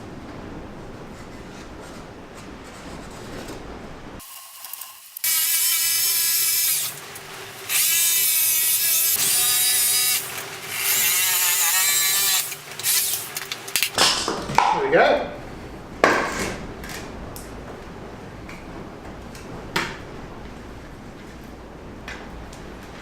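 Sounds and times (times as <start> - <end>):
power tool motor whine: 4.3 - 13.3.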